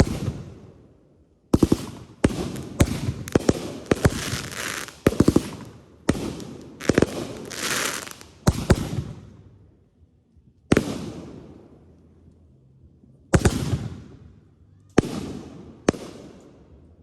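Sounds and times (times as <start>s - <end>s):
fireworks bangs: 1.6s - 9.2s
fireworks hiss: 2.4s - 5.6s, 6.7s - 8.4s.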